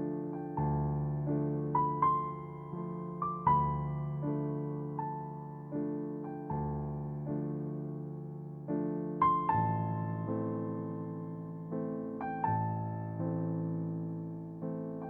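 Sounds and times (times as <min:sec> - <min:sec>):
gentle piano playing: 0:00.0 - 0:15.0.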